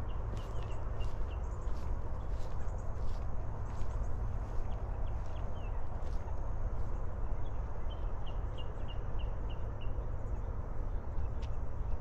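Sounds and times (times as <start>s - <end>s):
footsteps on a trail: 0.0s - 8.7s.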